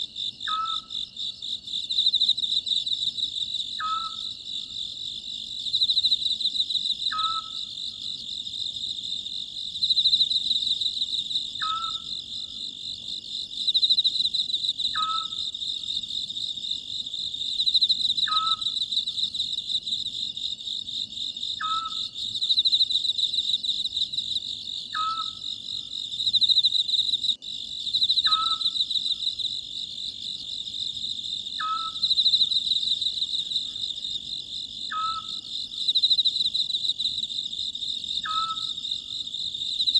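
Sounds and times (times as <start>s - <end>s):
crickets trilling: 0.0s - 39.9s
owl whistled call: 0.5s - 0.9s, 3.8s - 4.3s, 7.1s - 7.6s, 11.6s - 12.1s, 15.0s - 15.4s, 18.3s - 18.7s, 21.6s - 22.0s, 25.0s - 25.4s, 28.3s - 28.7s, 31.6s - 32.0s, 34.9s - 35.4s, 38.2s - 38.8s.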